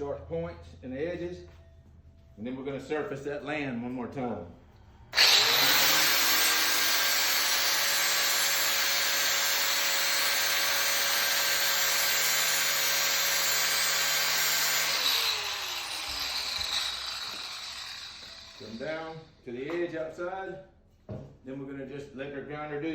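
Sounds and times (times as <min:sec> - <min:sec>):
grinder spinning down: 0:05.1 - 0:19.3
angle grinder grinding metal: 0:05.2 - 0:19.3.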